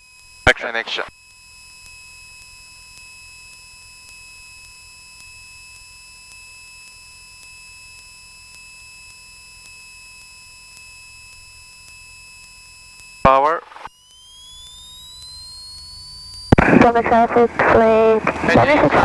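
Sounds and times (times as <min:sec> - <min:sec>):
faint low hum: 0:16.5 - 0:19.0.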